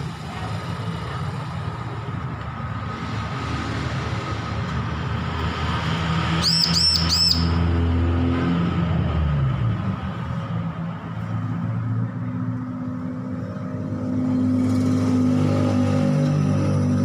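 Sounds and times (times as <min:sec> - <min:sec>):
low engine-like rumble: 0:00.0 - 0:07.7
bird chirping: 0:06.3 - 0:07.6.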